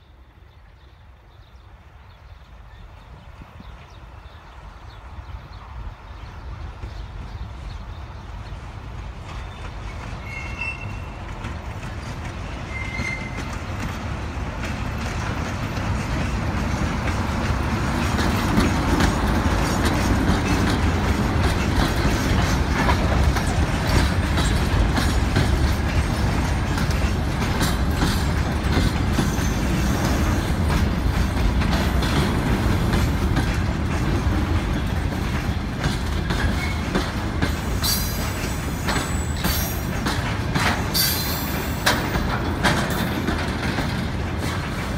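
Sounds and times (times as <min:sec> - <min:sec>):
train wheels rumbling: 0:00.0 - 0:44.9
clicking over rail joints: 0:08.4 - 0:44.9
high-pitched wheel squeal: 0:10.2 - 0:11.1, 0:12.7 - 0:13.5.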